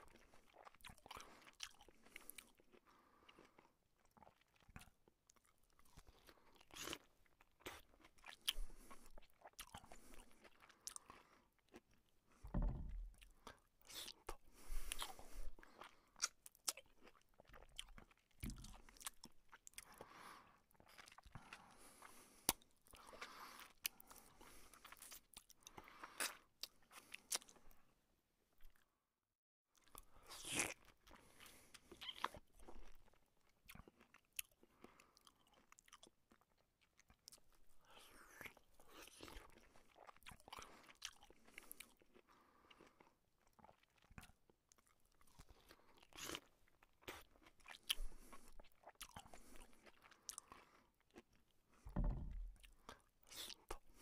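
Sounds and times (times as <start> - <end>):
man chewing flatbread: 0.0 - 27.9, 29.7 - 54.0.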